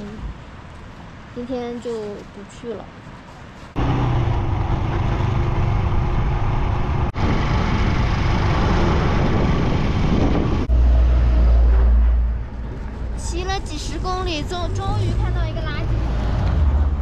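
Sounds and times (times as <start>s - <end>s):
wind noise on microphone: 3.7s - 16.6s
motorcycle riding: 3.8s - 11.8s
deep loud rumble: 3.8s - 16.0s.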